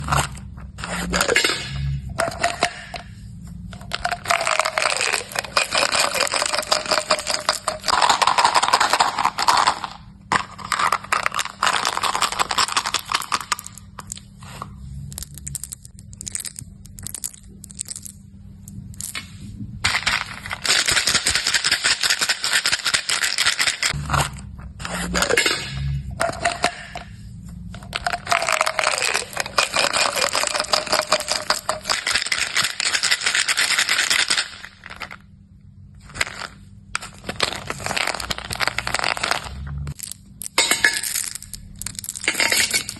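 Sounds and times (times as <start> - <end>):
hard candies rattling and clicking: 3.8 - 14.2, 15.1 - 18.2, 19.8 - 24.4, 27.8 - 35.2, 36.0 - 42.9.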